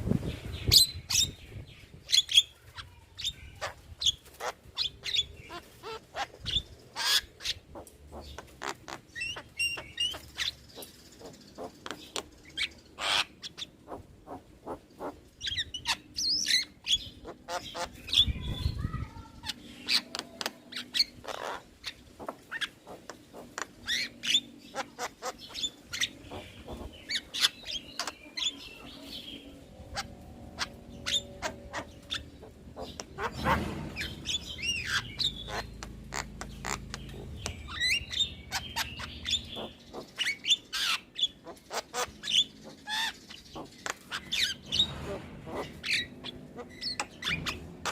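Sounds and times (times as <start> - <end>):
low thuds: 33.2 - 36.0.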